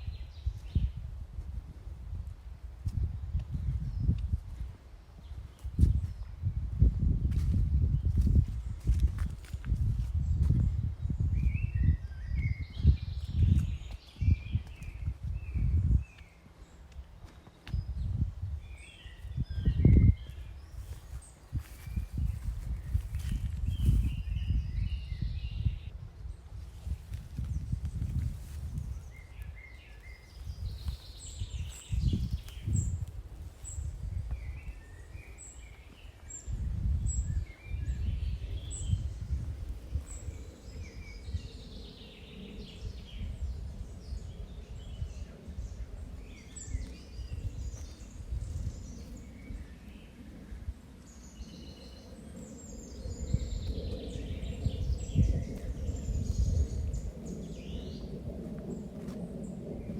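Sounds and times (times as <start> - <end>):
small birds singing and chirping: 0.0 - 1.8, 2.8 - 59.9
low rumbling noise: 17.8 - 59.9.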